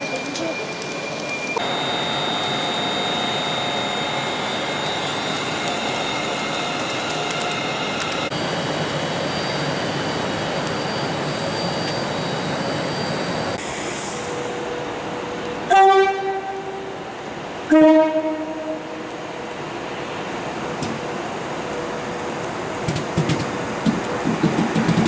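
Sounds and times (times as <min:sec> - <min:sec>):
high electric whines: 0:00.0 - 0:13.6
train hissing: 0:00.2 - 0:17.7.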